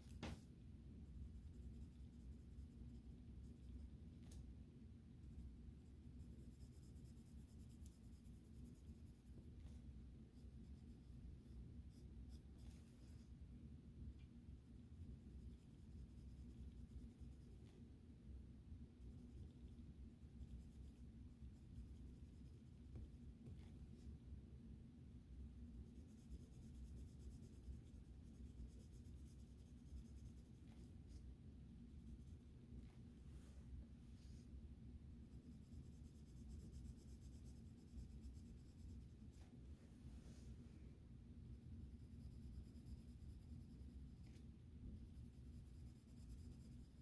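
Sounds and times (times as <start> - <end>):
low steady hum: 0.0 - 47.0
coloring strokes scratching paper: 1.0 - 4.4, 5.2 - 13.4, 14.8 - 17.9, 19.0 - 24.1, 25.4 - 31.3, 35.4 - 39.6, 41.8 - 47.0
colouring tool scratching on paper: 5.2 - 9.8, 45.0 - 47.0.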